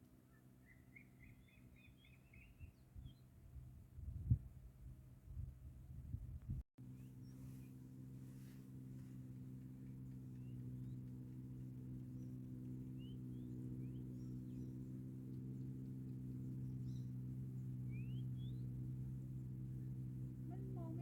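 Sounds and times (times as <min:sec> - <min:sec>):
low mechanical hum: 0:00.0 - 0:21.0
bird chirps: 0:00.3 - 0:03.2, 0:09.8 - 0:20.6.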